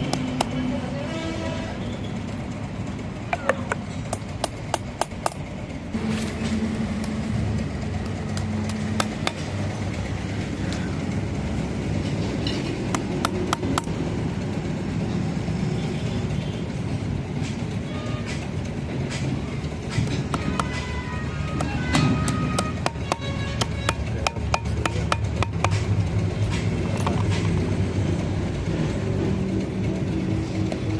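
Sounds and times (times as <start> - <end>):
low mechanical rumble: 0.0 - 30.9
sharp clicks and knocks: 8.0 - 9.7, 17.4 - 21.0, 21.6 - 27.7.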